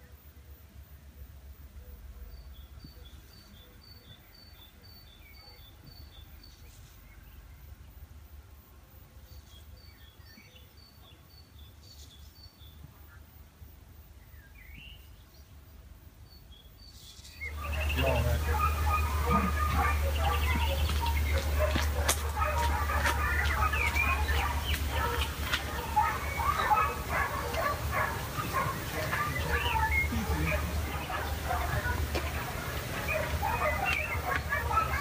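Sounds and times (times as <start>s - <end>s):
brief bird calls: 17.0s - 35.0s.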